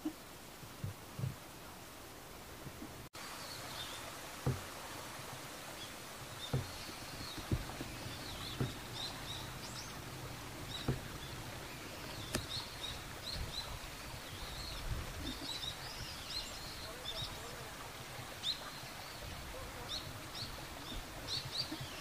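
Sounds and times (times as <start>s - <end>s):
soft low knocks: 0.0s - 1.5s, 4.4s - 4.9s, 6.2s - 15.2s
outdoor background noise: 0.0s - 22.0s
small birds chirping: 3.2s - 4.8s, 5.6s - 22.0s.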